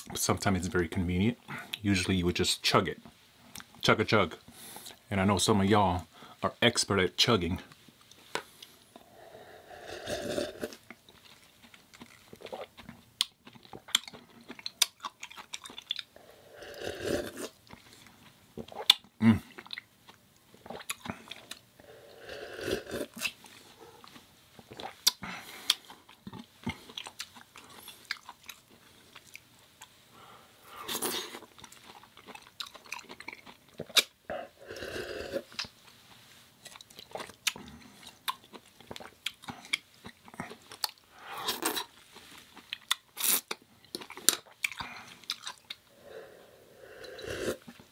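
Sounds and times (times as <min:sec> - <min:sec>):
person chewing crunchy food: 0:09.7 - 0:30.0, 0:30.7 - 0:45.9
wet mouth sounds: 0:18.6 - 0:19.9, 0:20.6 - 0:21.6, 0:22.4 - 0:29.4, 0:30.9 - 0:35.8.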